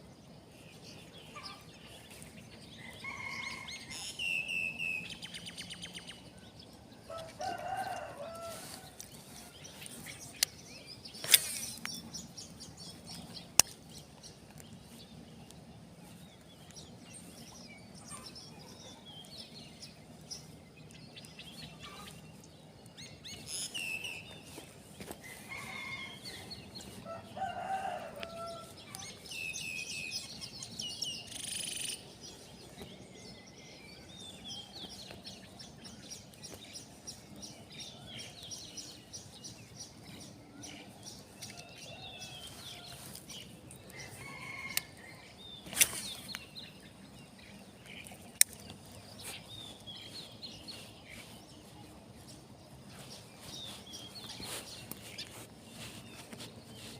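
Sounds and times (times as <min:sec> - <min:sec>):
birds calling: 0:00.0 - 0:56.9
rooster crowing: 0:02.8 - 0:04.0, 0:07.0 - 0:09.0, 0:25.3 - 0:29.0, 0:43.9 - 0:45.3.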